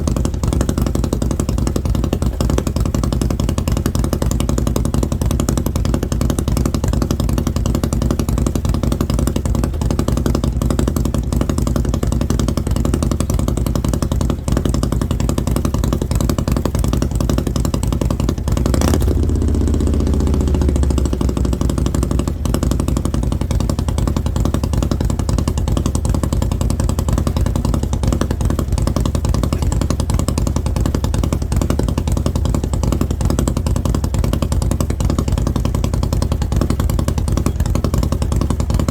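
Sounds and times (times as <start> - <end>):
motorcycle engine idling: 0.0 - 38.9
sharp exhaust crack: 18.5 - 23.5.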